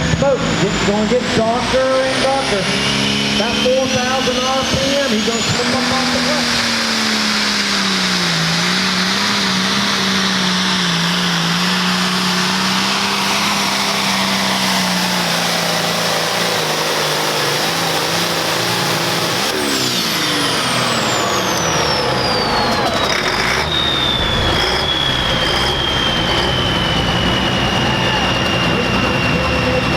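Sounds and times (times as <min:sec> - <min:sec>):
diesel tractor engine running: 0:00.0 - 0:29.9
turbo whistle: 0:21.2 - 0:29.9.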